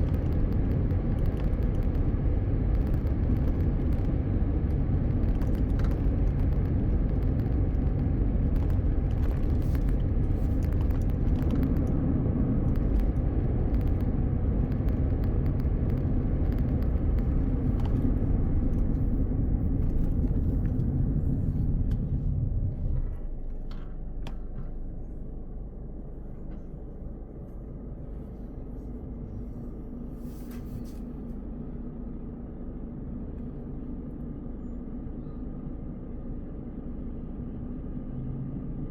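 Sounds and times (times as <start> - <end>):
road and tyre rumble: 0.0 - 38.9.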